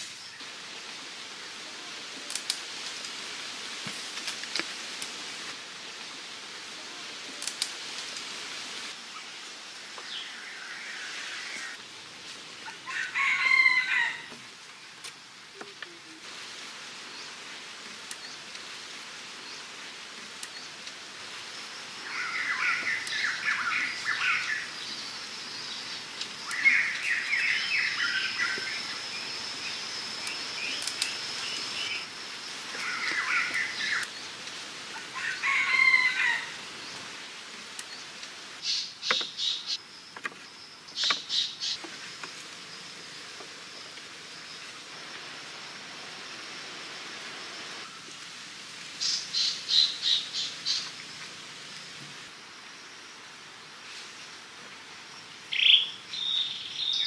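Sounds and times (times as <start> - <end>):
birds chattering: 32.7 - 34.1.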